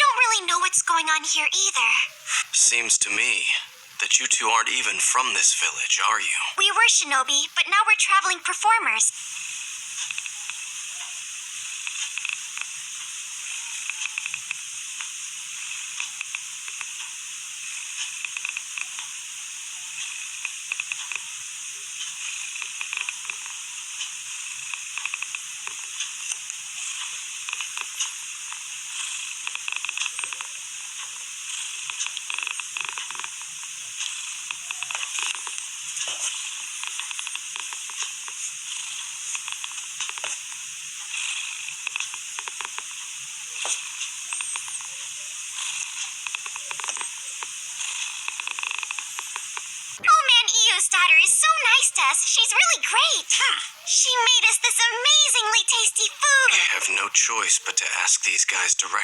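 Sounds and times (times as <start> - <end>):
steady high hiss: 0.0 - 59.0
small crackles: 9.1 - 50.1.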